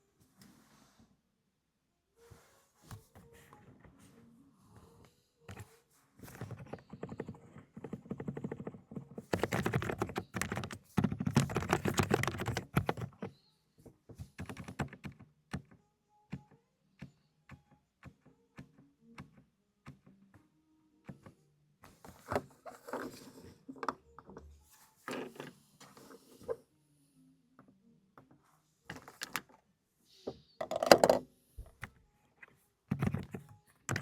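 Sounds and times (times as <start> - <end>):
muted keyboard keystrokes: 6.4 - 13.3, 14.4 - 15.7.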